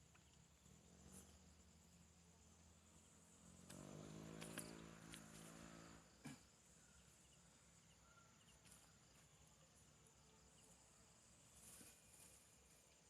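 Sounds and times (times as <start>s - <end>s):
insects chirring: 0.0s - 13.0s
faint ticks: 3.6s - 5.5s.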